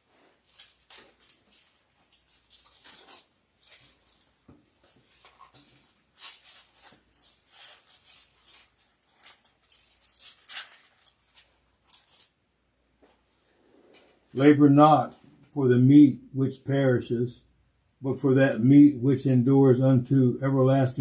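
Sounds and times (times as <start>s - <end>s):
pages rustling: 0.0s - 12.4s.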